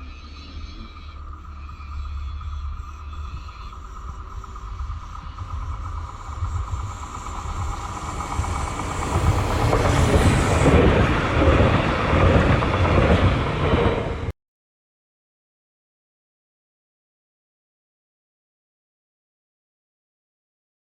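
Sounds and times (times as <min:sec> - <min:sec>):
train passing: 0:00.0 - 0:14.3.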